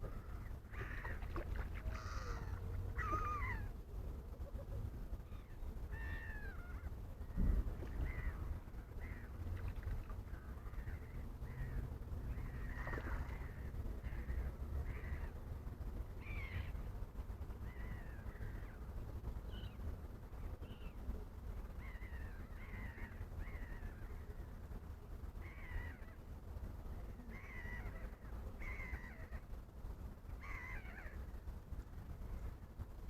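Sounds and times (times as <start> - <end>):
wild birds calling: 0.0 - 3.8, 4.5 - 15.4, 21.8 - 24.2, 25.4 - 26.2, 27.2 - 29.5, 30.4 - 31.3
steady low rumble: 0.0 - 33.0.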